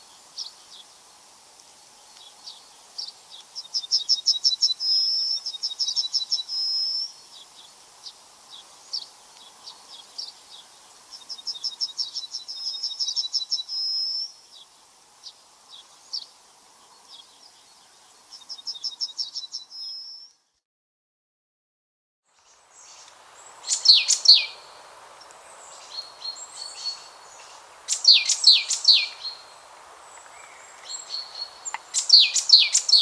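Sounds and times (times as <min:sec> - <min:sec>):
faint background hiss: 0:00.0 - 0:20.6, 0:22.3 - 0:33.0
songbird trilling song: 0:02.0 - 0:20.4, 0:22.4 - 0:33.0
bird chirps: 0:22.8 - 0:24.7, 0:25.6 - 0:33.0.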